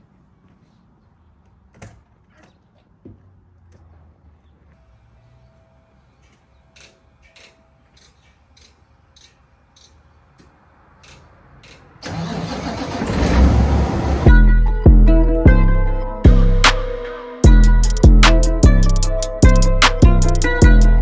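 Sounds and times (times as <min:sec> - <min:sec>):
engine starting and running: 0:11.0 - 0:14.4.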